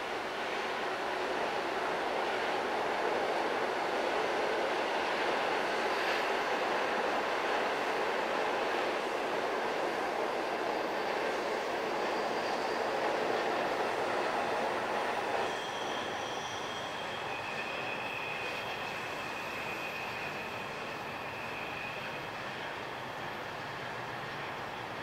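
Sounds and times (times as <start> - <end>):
electric train rumbling on tracks: 0.0 - 25.0
high wheel squeal: 10.9 - 24.8.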